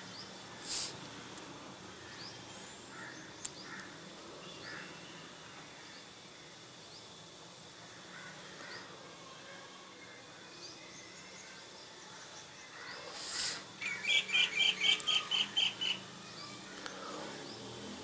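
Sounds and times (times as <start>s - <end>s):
small birds chirping: 10.5s - 18.0s.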